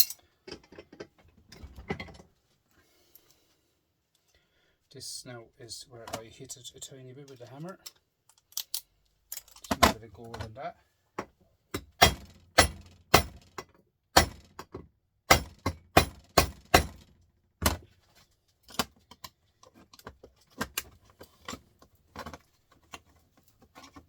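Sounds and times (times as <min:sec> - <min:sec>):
light metallic taps and clinks: 0:00.0 - 0:01.2.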